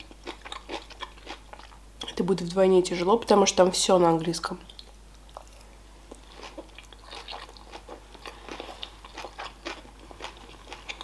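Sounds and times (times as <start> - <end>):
person chewing with wet clicks: 0.0 - 2.1, 4.6 - 11.0.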